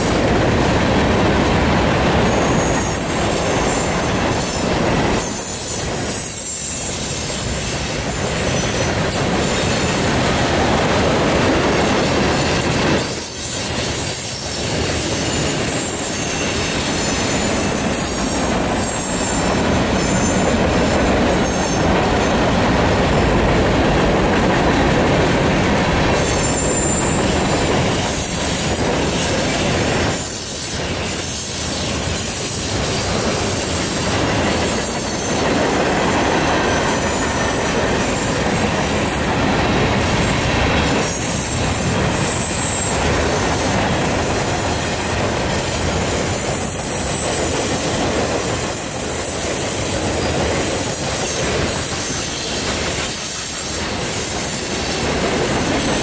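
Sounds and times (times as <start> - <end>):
train wheels clacking on rails: 0.0 - 56.0
high wheel squeal: 2.2 - 10.1, 10.9 - 22.4, 26.2 - 40.2, 40.8 - 56.0.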